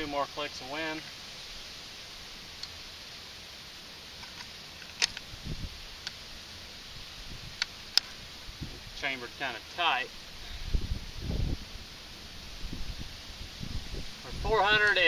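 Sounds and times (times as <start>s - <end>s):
rifle bolt clicking: 4.2s - 5.2s
wind noise: 4.9s - 6.1s, 6.8s - 9.2s, 10.1s - 15.0s.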